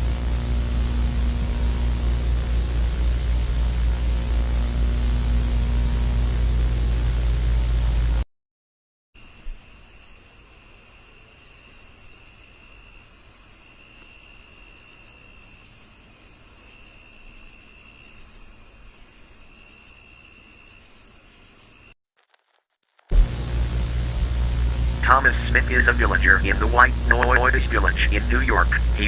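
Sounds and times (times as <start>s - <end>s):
crickets trilling and chirping: 9.3s - 21.8s.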